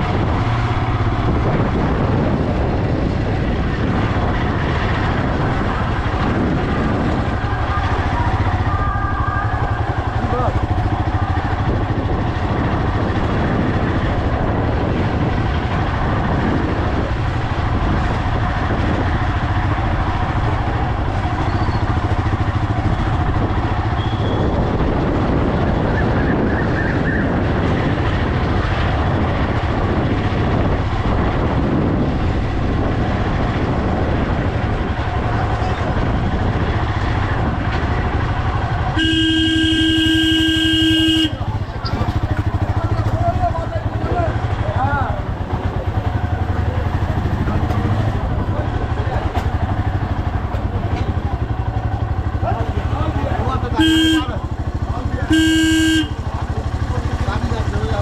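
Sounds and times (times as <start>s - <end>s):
wind rumble on microphone: 0.0s - 53.7s
motorcycle engine: 0.0s - 58.0s
vehicle horn steady tone: 24.0s - 24.5s, 38.9s - 41.6s, 53.7s - 56.8s.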